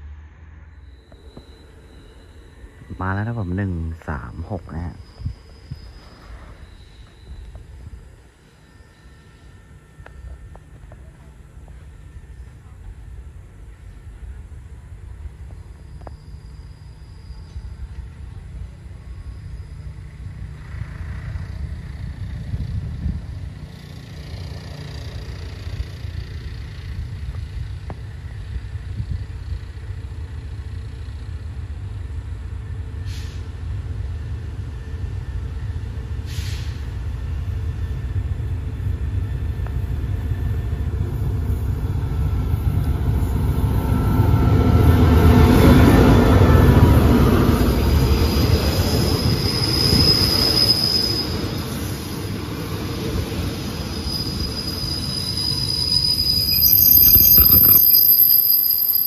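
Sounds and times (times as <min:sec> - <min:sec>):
train rumbling past: 0:00.0 - 0:59.0
high wheel squeal: 0:00.4 - 0:14.2, 0:15.2 - 0:22.6, 0:43.2 - 0:59.0.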